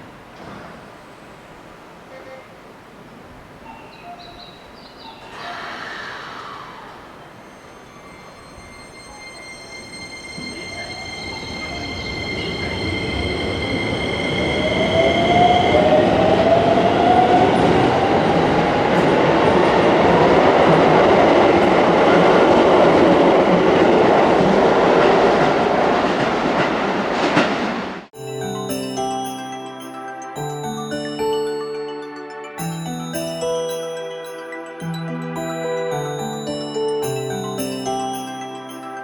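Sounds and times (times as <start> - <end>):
train wheels rolling on rail: 7.4 - 28.1.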